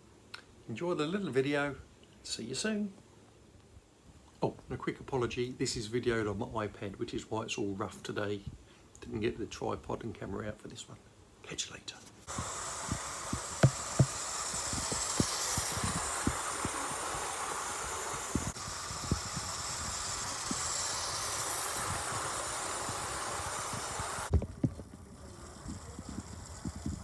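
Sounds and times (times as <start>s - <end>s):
model train running hiss: 12.2s - 27.0s
wheels clicking over rail joints: 12.2s - 27.0s.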